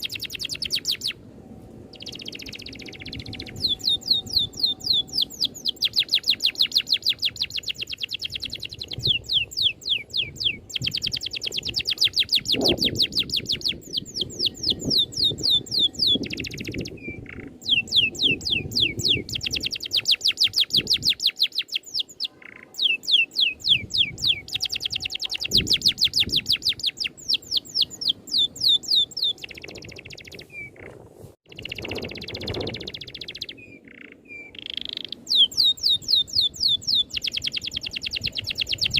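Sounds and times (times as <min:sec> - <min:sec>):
songbird trilling: 0:00.0 - 0:01.2, 0:01.9 - 0:38.9.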